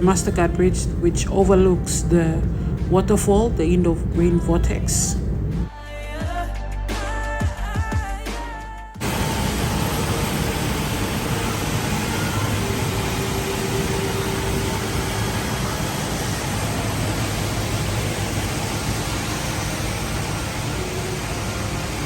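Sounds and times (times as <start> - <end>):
indoor waterfall roaring: 9.0 - 22.0.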